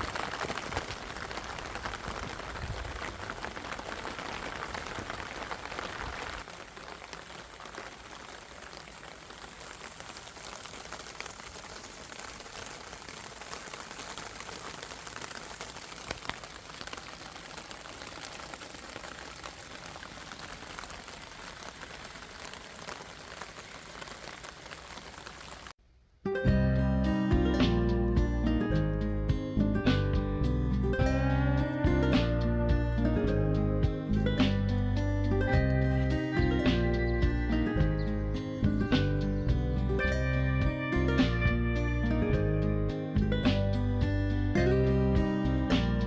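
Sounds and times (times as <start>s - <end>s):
raindrops ticking: 0.0s - 25.8s
steady rain falling: 0.0s - 25.8s, 28.7s - 46.0s.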